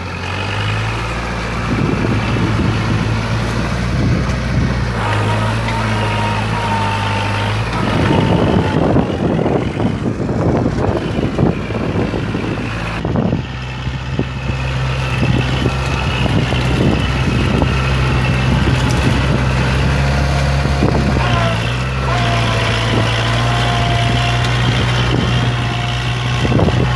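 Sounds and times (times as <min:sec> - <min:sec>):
tractor engine running: 0:00.0 - 0:26.9
irregular clatter and crackle: 0:15.0 - 0:26.9.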